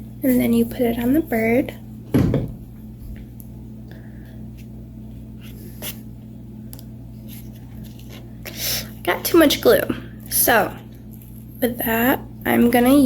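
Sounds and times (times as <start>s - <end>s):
steady low hum: 0.0s - 13.0s
short low bump: 2.1s - 3.2s.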